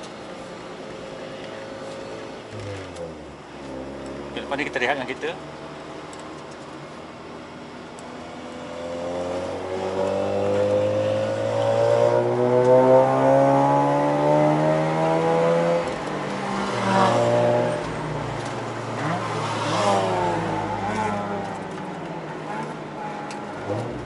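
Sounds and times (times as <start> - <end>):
rotary engine accelerating: 8.4 - 22.8.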